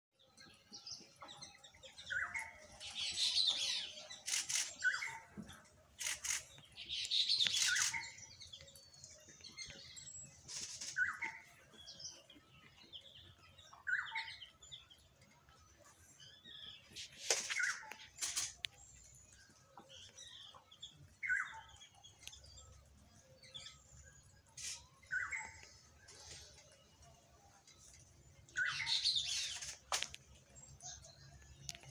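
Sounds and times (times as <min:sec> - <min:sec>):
birds chirping and chattering: 0:00.2 - 0:31.9
sharp clicks: 0:04.2 - 0:04.8, 0:06.0 - 0:08.1, 0:17.3 - 0:18.8.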